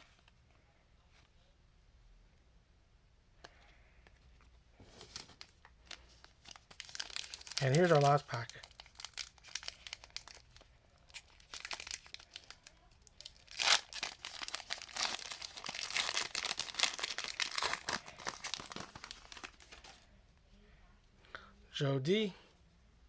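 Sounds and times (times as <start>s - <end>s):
wrapper crinkling: 4.9s - 20.0s
wrapper tearing: 5.1s - 20.0s.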